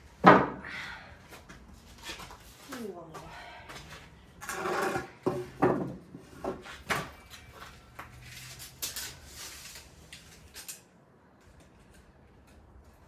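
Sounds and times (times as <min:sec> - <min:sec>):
objects knocking and clattering: 0:04.4 - 0:09.1.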